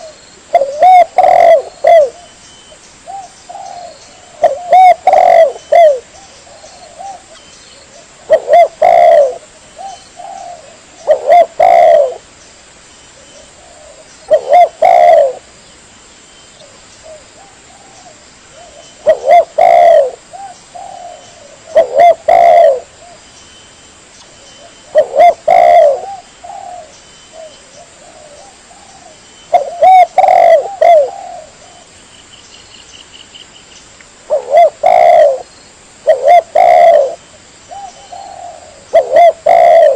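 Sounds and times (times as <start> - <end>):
dove cooing: 0.0 - 2.4, 3.0 - 12.3, 13.2 - 15.5, 16.6 - 23.2, 24.6 - 31.9, 34.3 - 39.9.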